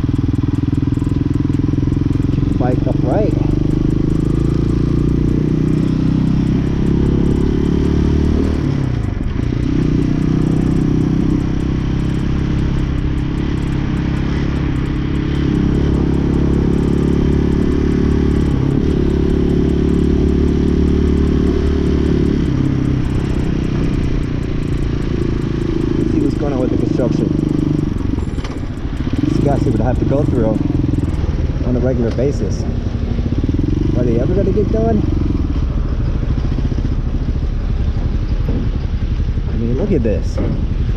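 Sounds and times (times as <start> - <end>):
motorcycle engine running: 0.0 - 40.9
road and wind noise: 0.0 - 40.9.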